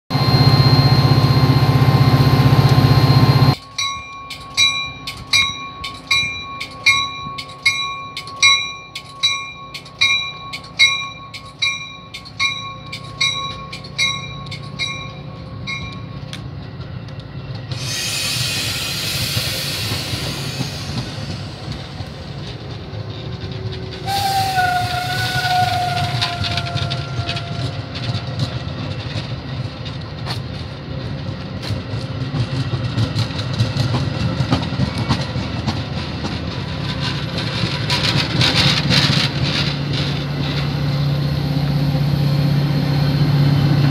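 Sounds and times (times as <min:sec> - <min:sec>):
bell ringing: 0:00.1 - 0:16.3
tone: 0:00.1 - 0:16.3
loud steady train noise: 0:00.1 - 0:43.9
passenger cars rolling past hiss: 0:17.7 - 0:22.6.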